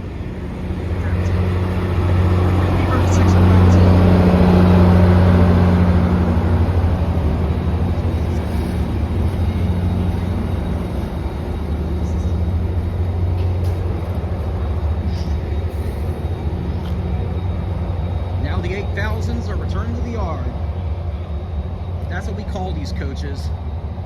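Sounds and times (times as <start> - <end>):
diesel locomotive engine drone: 0.0 - 24.0
train wheel and rail noise: 0.0 - 24.0.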